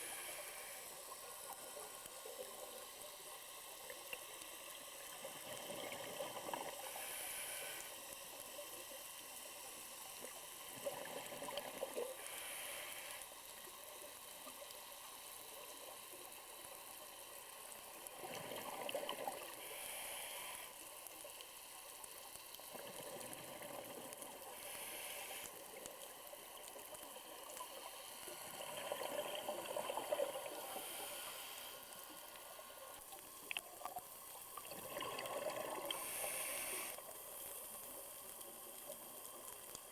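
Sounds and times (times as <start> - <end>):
regulator inhale hiss: 0.0 - 5.5, 6.6 - 8.9, 11.8 - 13.9, 19.4 - 21.2, 24.2 - 25.8, 27.5 - 29.4, 30.2 - 33.2, 35.8 - 38.0
exhaled bubbles gurgling underwater: 5.1 - 6.9, 10.7 - 12.2, 18.0 - 19.8, 22.6 - 24.6, 25.6 - 31.2, 33.4 - 36.9.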